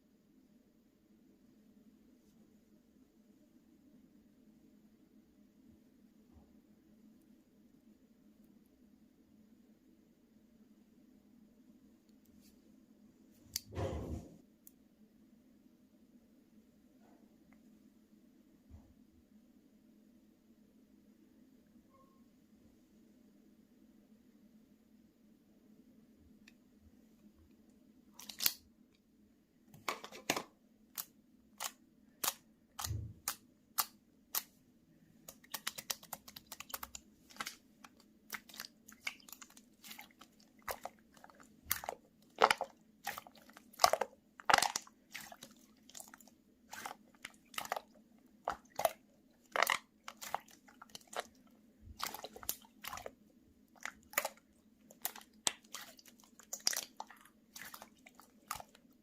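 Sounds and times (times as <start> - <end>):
faint steady hum: 0.0 - 59.0
slime popping and crackling: 31.0 - 34.5, 35.2 - 53.1, 53.8 - 58.8.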